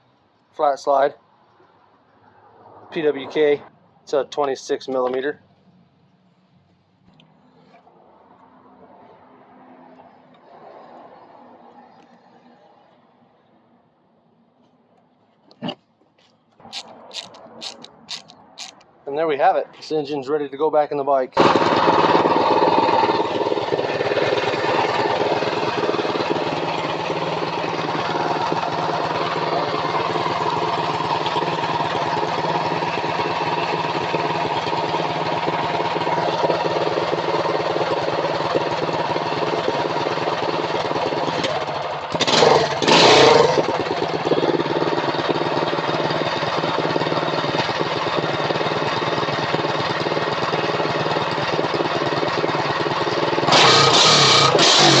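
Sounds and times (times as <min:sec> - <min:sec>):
minibike engine running: 0:16.7 - 0:18.8, 0:21.4 - 0:55.0.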